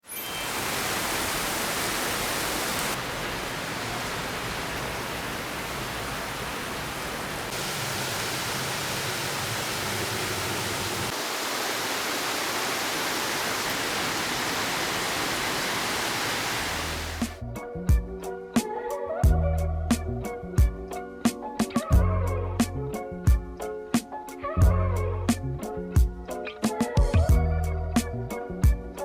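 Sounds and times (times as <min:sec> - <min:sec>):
steady rushing noise: 0:00.6 - 0:17.4.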